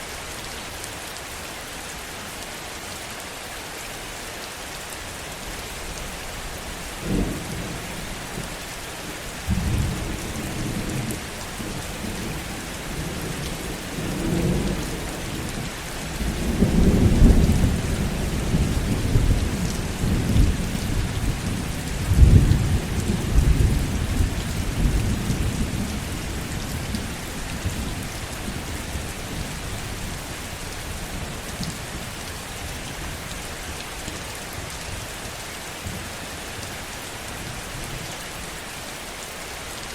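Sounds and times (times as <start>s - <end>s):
heavy rain falling: 0.0s - 39.9s
thunder claps and rumbles: 7.0s - 32.2s.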